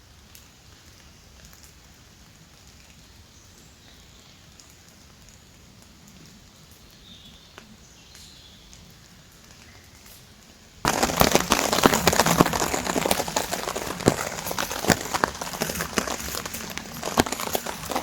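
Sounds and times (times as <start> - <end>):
light rain pattering: 0.0 - 18.0
loud dense crackling: 10.8 - 18.0.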